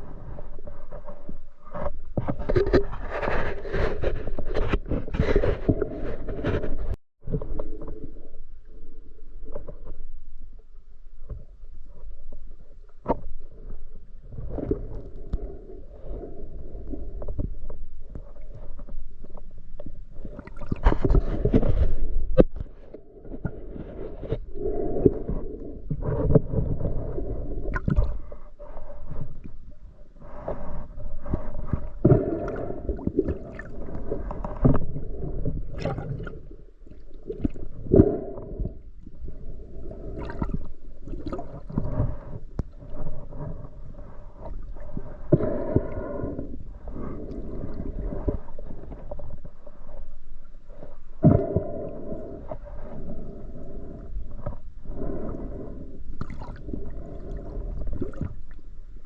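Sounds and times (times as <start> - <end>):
muffled water sloshing: 11.0 - 59.0.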